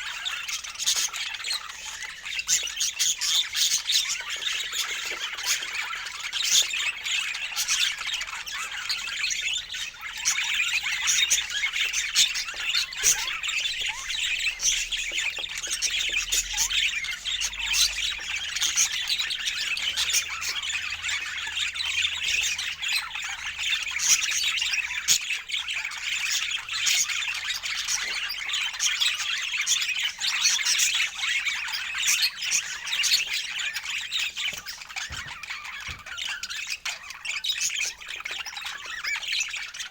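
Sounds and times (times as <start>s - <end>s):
flock of birds chattering: 0.0s - 39.9s.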